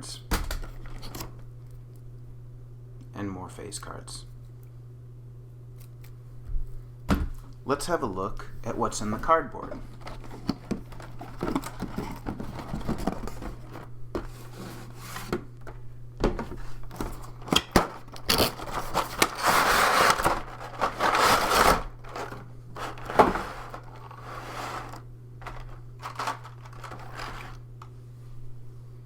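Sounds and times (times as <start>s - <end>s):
steady low hum: 0.0s - 29.0s
rustling and sliding: 9.7s - 15.5s, 16.4s - 27.7s.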